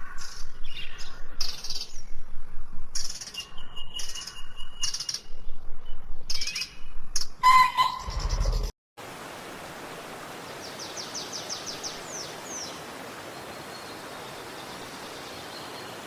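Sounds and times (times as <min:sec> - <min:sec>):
songbirds chirping: 0:10.4 - 0:16.0.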